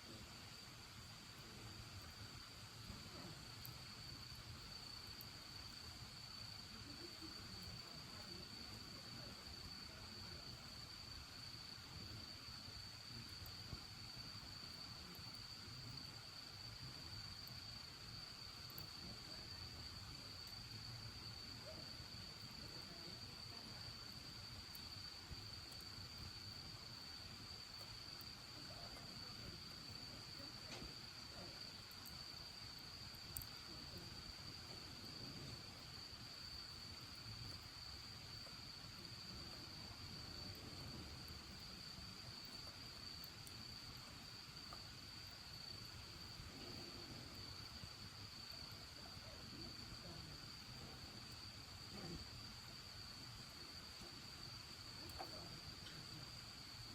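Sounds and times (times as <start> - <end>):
crickets trilling: 0.0 - 56.9
wood fire crackling: 0.1 - 56.9
faint ticks: 29.8 - 33.6, 55.0 - 56.2.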